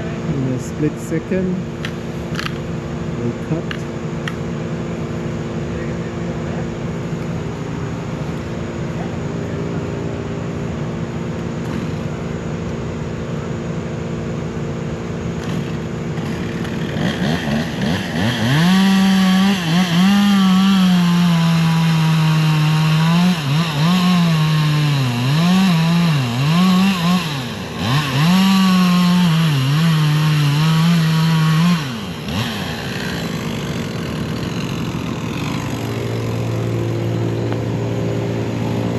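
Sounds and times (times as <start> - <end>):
steady engine hum: 0.0 - 38.9
chainsaw cutting wood: 0.8 - 2.8, 11.4 - 12.2, 15.3 - 38.9.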